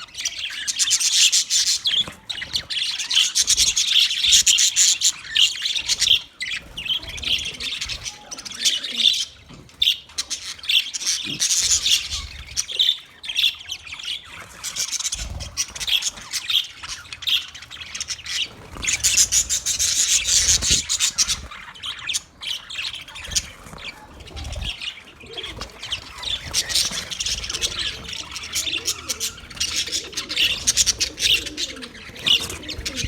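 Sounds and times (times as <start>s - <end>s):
budgies chirping and squawking: 0.0s - 33.0s.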